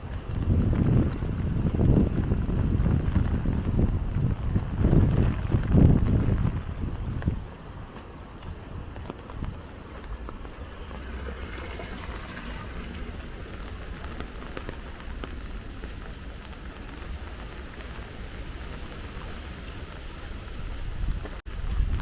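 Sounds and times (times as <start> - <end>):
low rumble: 0.0 - 20.0
steady rain falling: 0.0 - 22.0
sharp drips: 9.9 - 18.0.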